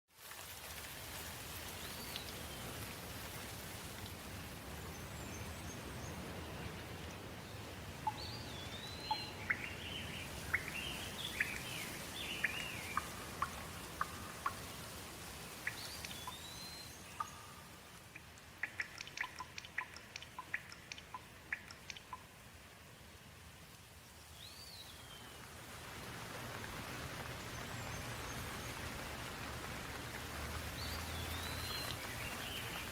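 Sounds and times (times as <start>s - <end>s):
steady rain: 0.1s - 32.9s.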